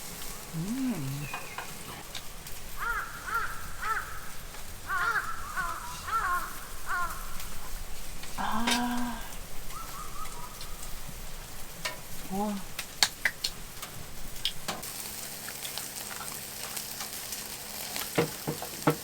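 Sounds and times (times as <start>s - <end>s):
steady hiss: 0.0s - 19.0s
bird harsh calls: 0.6s - 2.1s, 2.7s - 7.7s, 9.6s - 11.1s.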